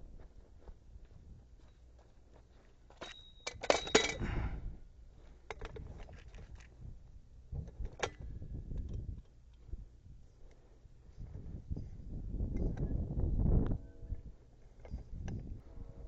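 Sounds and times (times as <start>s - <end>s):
metallic clinking and clicks: 3.0s - 4.2s.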